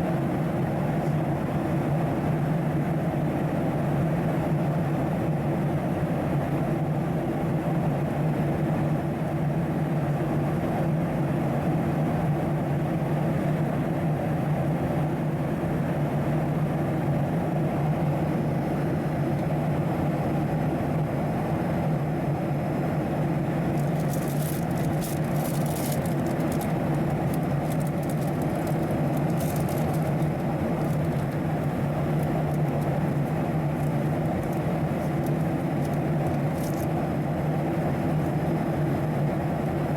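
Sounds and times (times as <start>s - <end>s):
airliner cabin engine drone: 0.0s - 39.9s
faint crackles: 23.8s - 36.9s.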